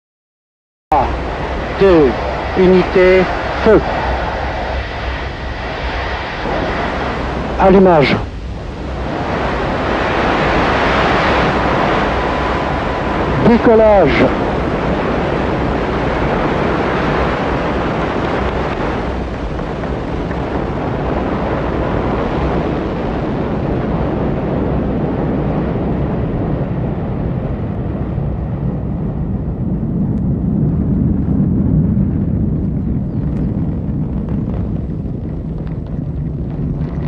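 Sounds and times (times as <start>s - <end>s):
rocket engines roaring: 0.9s - 37.0s.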